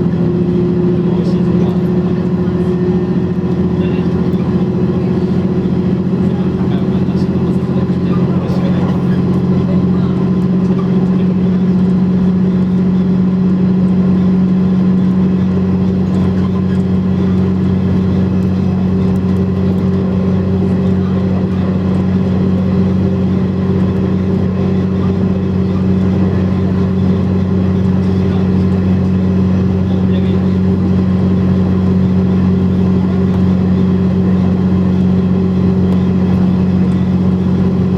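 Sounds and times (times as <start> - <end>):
train engine droning: 0.0 - 37.9.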